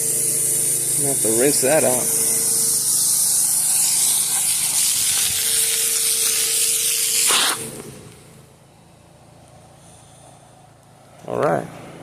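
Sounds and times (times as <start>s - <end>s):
pressure washer water spray hissing: 0.0s - 7.9s
motor humming: 0.0s - 8.5s.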